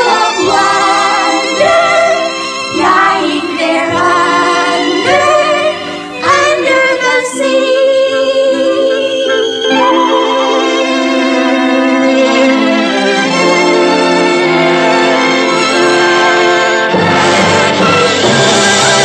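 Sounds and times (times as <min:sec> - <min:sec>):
people singing long notes: 0:00.0 - 0:12.8.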